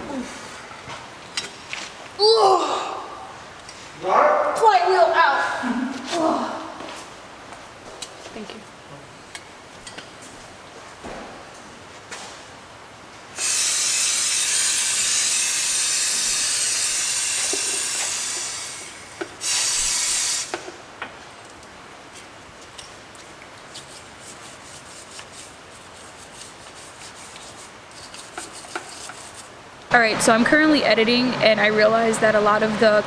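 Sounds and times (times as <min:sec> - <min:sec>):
pressurized spray hissing: 0:13.4 - 0:20.7.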